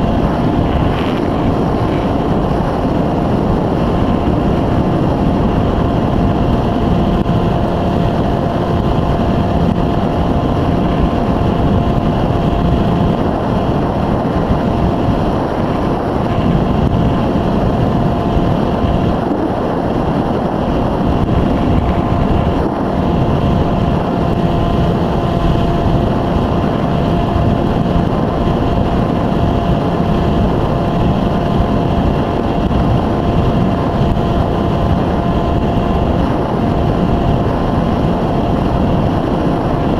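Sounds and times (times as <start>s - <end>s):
electric motor whine: 0.0s - 39.9s
wind on microphone: 0.0s - 39.9s.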